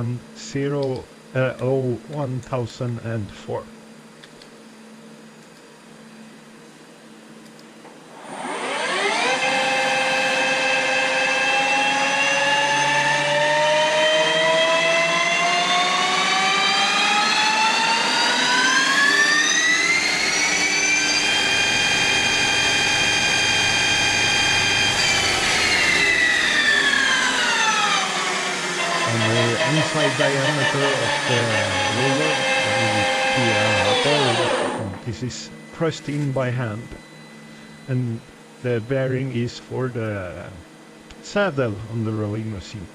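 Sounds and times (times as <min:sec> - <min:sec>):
lathe spindle whining: 0:08.1 - 0:39.2.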